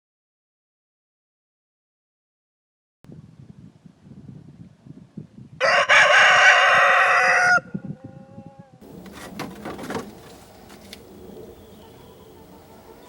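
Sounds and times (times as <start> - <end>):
rustling: 8.8 - 13.0.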